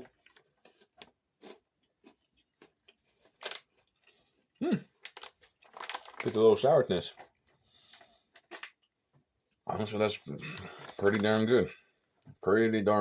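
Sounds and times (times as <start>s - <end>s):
crunchy food being chewed: 0.0s - 6.1s.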